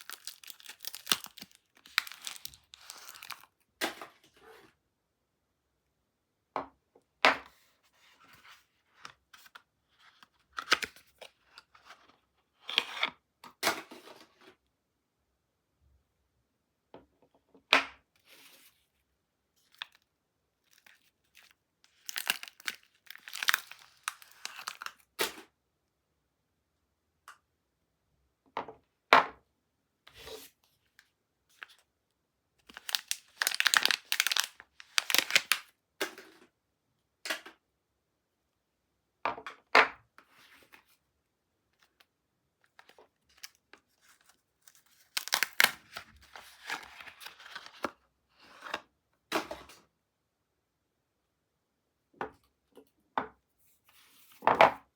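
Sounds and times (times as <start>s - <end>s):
soap wrapping rustling: 0.0s - 3.6s, 19.6s - 25.2s, 32.6s - 35.8s, 41.8s - 48.0s.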